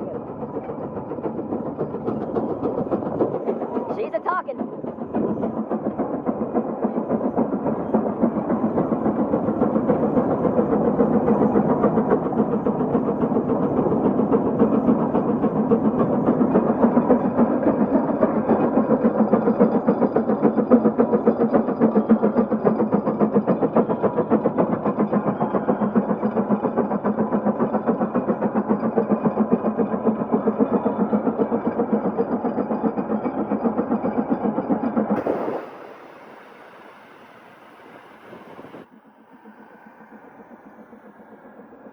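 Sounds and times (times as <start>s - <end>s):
faint steam hiss: 35.2s - 38.9s
steam engine exhaust chuffing: 35.2s - 41.9s.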